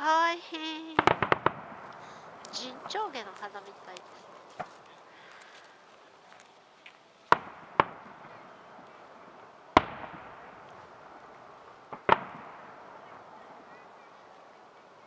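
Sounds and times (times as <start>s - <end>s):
firework shells bursting: 0.9s - 4.8s, 7.3s - 13.3s.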